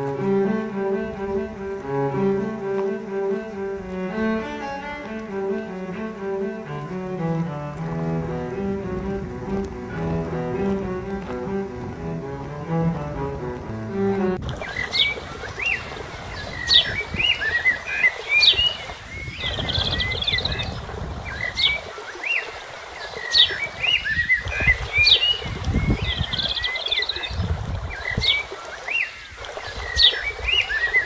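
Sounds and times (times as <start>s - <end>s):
wind rumble on microphone: 0.0s - 31.0s
songbirds chirping and trilling: 14.4s - 31.0s.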